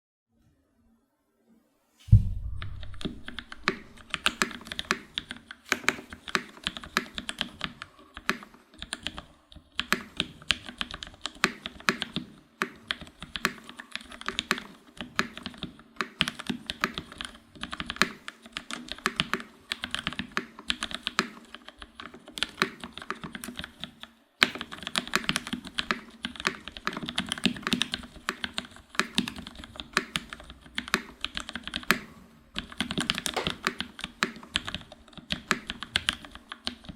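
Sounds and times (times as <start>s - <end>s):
mechanical keyboard typing: 2.8s - 36.9s.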